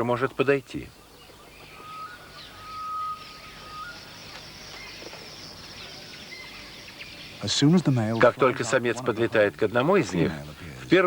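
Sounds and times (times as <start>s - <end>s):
bird chirps: 0.9s - 10.8s
high insect drone: 1.9s - 8.7s.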